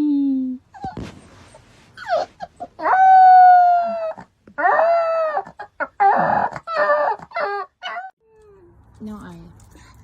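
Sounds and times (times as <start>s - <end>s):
animal broken cries: 2.8s - 8.8s.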